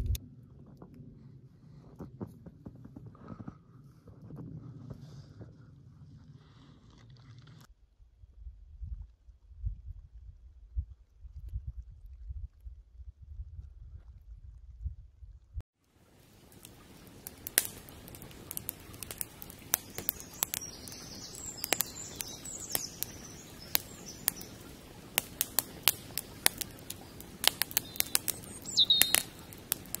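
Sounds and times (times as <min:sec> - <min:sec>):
wood fire crackling: 0:16.0 - 0:30.0.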